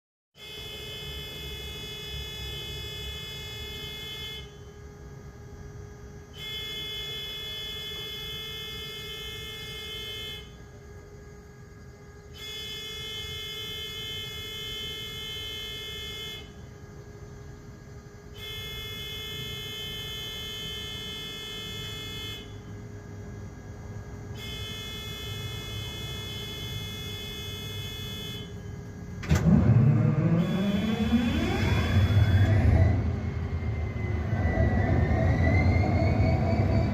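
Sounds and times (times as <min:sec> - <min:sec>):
buzzer tone: 0:00.4 - 0:04.8, 0:06.4 - 0:10.6, 0:12.3 - 0:16.6, 0:18.3 - 0:23.2, 0:24.2 - 0:33.0
diesel engine cranking and firing: 0:29.1 - 0:36.9.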